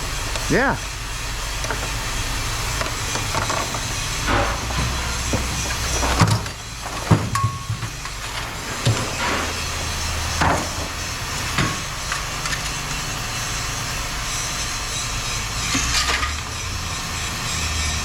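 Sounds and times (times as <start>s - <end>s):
motor running: 0.0s - 18.0s
scrap rattling: 2.8s - 12.8s
scrap knocking: 3.2s - 11.0s.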